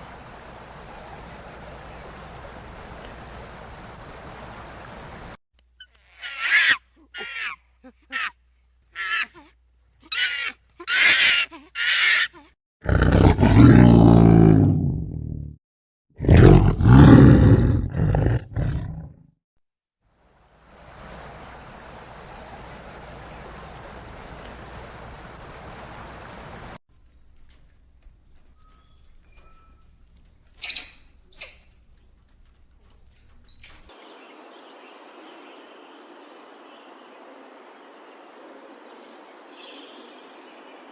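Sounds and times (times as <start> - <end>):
deep animal roars: 12.8 - 15.6, 16.2 - 19.2
high bird chirps: 20.7 - 27.1.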